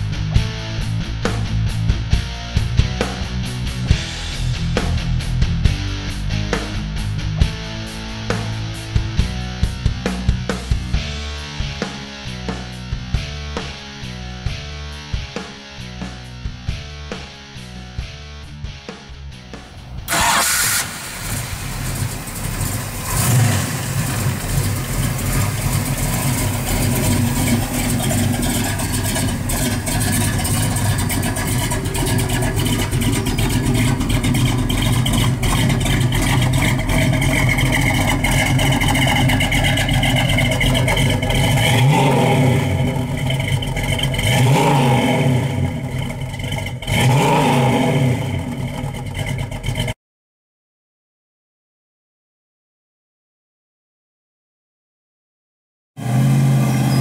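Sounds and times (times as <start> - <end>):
car engine running and revving: 0.0 - 11.2, 19.4 - 50.0, 56.0 - 57.0.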